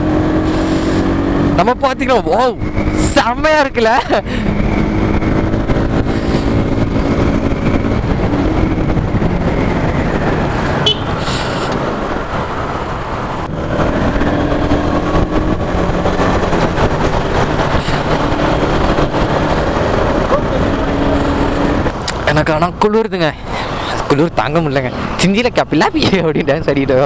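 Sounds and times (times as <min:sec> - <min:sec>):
motorcycle engine running: 0:00.0 - 0:11.7, 0:13.0 - 0:22.1
wind rumbling on microphone: 0:00.0 - 0:27.0.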